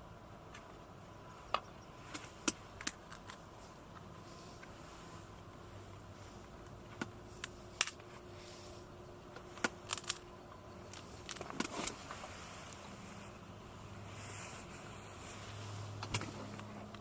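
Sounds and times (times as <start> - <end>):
faint steady hum: 0.0 - 17.0
small objects clicking and rustling: 9.4 - 12.0.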